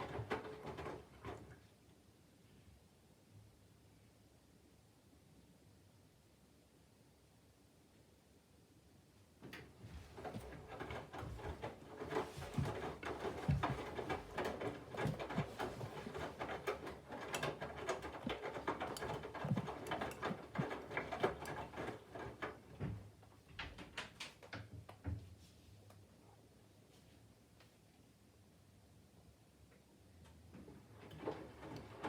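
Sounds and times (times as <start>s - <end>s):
laundry tumbling in washing machine: 0.0s - 1.8s, 9.4s - 25.3s, 30.5s - 32.0s.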